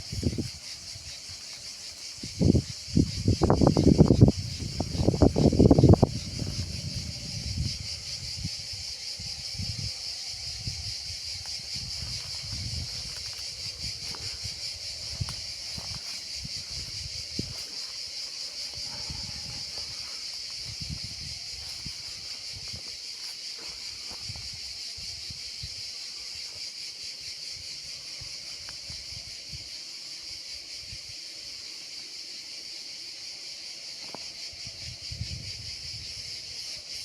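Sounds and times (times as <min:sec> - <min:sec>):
wind rumbling on microphone: 0:00.0 - 0:26.0, 0:34.5 - 0:37.0.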